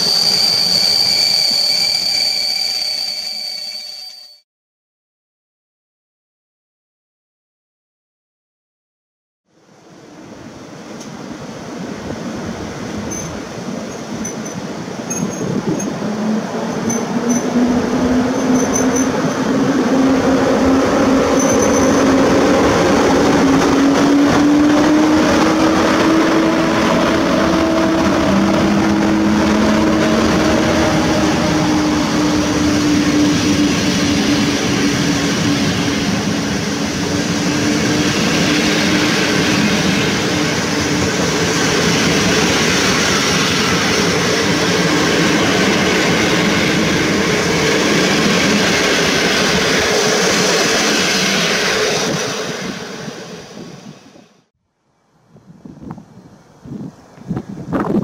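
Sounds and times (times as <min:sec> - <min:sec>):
electric locomotive whine: 0:00.0 - 0:04.4, 0:09.6 - 0:54.5
wheels rumbling on rails: 0:09.6 - 0:54.5.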